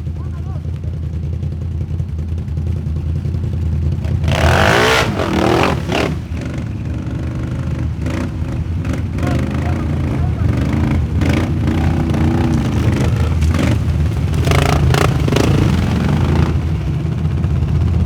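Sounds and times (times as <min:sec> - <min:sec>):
atv engines droning: 0:00.0 - 0:18.0
atv engine revving hard: 0:03.9 - 0:18.0.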